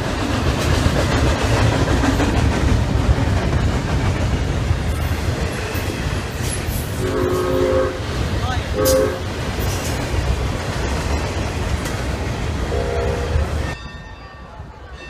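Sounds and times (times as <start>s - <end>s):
train wheels on rails: 0.0s - 15.0s
train horn chord: 7.0s - 8.1s, 8.8s - 9.2s, 12.7s - 13.7s.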